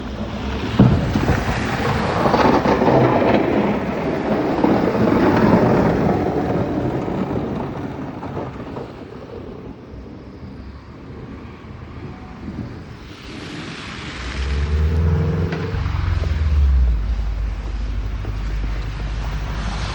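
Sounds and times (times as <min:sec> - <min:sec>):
blizzard wind buffeting microphone: 0:00.0 - 0:19.9.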